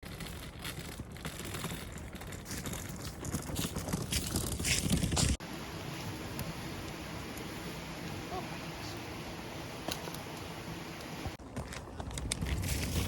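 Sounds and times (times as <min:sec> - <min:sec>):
crinkling and rustling: 0:00.0 - 0:05.4, 0:11.4 - 0:13.0.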